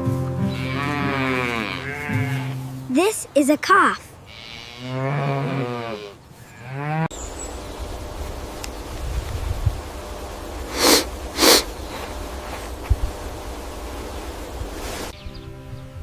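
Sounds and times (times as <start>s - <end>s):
low outdoor rumble: 4.4s - 15.1s
calf snorting: 10.7s - 12.7s.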